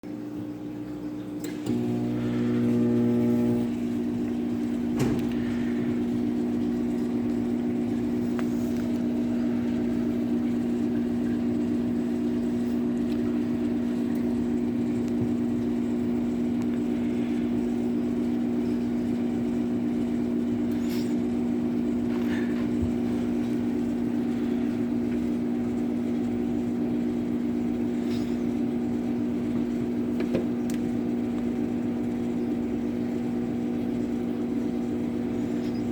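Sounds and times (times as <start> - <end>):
microwave oven humming: 0.0 - 35.9.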